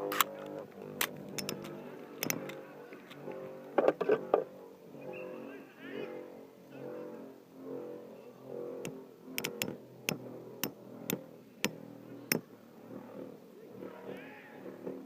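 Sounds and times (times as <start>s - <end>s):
sharp clicks: 0.1s - 2.6s, 8.8s - 12.4s.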